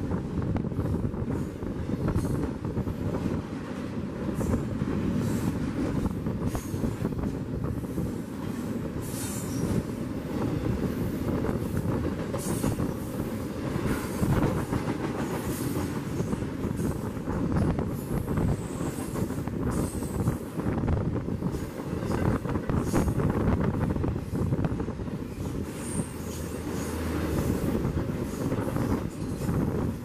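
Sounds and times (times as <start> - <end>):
train wheels rumbling on rails: 0.0 - 30.0
high-pitched wheel squeals: 25.2 - 27.1.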